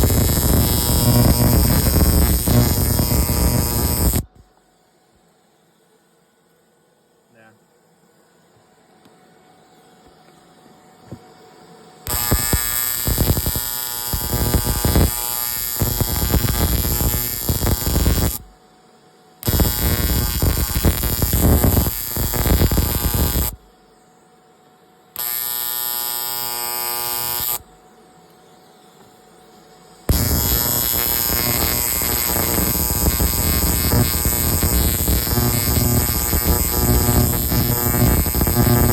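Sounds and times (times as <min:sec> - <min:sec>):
arc welder buzzing: 0:00.0 - 0:04.3, 0:12.0 - 0:18.5, 0:19.4 - 0:23.6, 0:25.2 - 0:27.7, 0:30.1 - 0:38.9.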